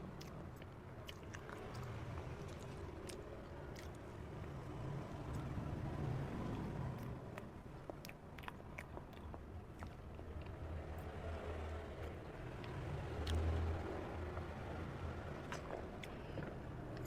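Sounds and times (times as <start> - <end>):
chewing with wet mouth clicks: 0.2 - 4.6, 6.5 - 11.2, 12.0 - 13.5, 15.4 - 17.0.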